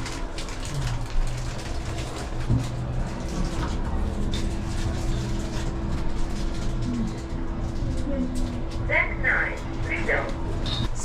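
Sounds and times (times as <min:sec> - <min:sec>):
elevator humming: 0:01.2 - 0:11.0.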